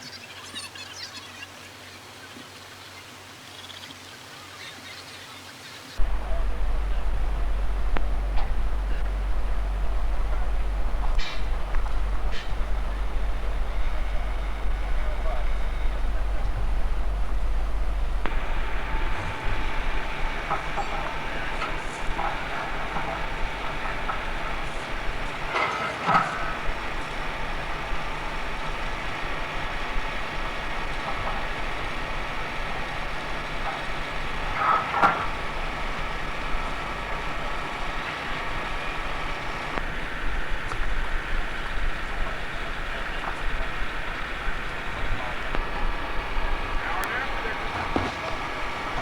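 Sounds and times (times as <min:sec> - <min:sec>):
engine running: 0:06.0 - 0:49.0.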